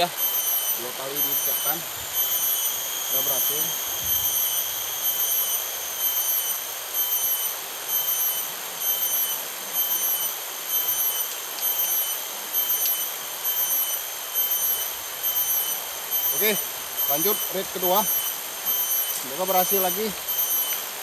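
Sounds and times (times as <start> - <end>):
insect chirping: 0.0 - 21.0.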